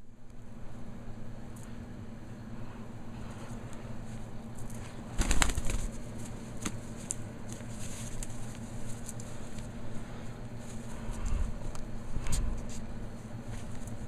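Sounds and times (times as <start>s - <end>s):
parrot flapping wings: 4.6s - 9.7s.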